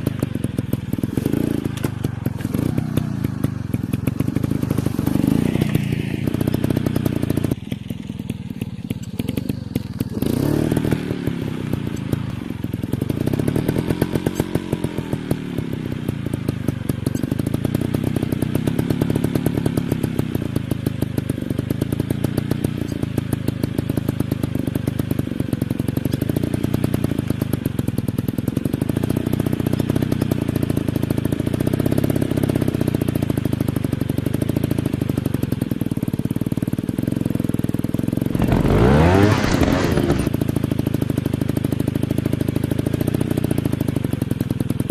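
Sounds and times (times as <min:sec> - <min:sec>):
dirt bike engine revving: 0:00.0 - 0:07.6, 0:09.2 - 0:12.3, 0:38.2 - 0:40.4.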